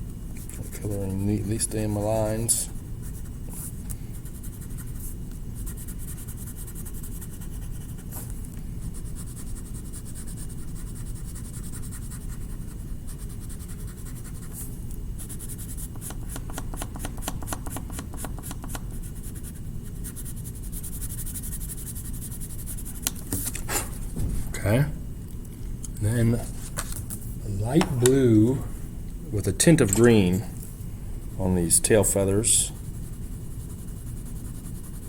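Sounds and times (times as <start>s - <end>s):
colouring tool scratching on paper: 9.0s - 23.0s, 32.7s - 35.0s.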